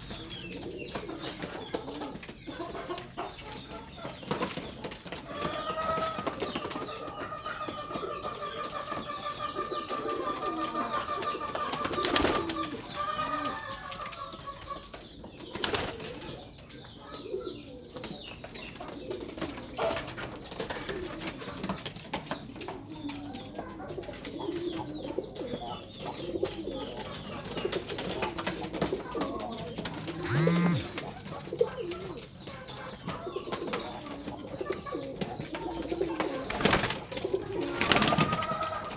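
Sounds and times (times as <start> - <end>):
pigeons cooing: 0.0 - 38.9
high trilling call: 30.2 - 30.9.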